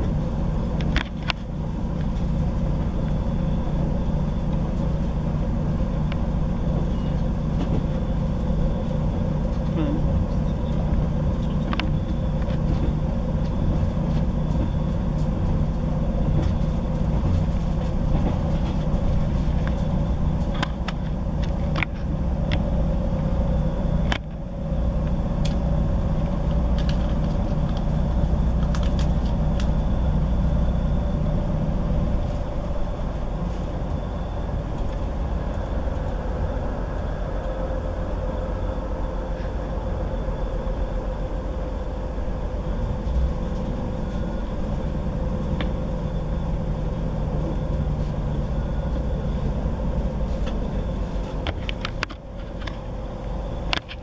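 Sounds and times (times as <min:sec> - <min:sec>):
train interior rumble and drone: 0:00.0 - 0:54.0.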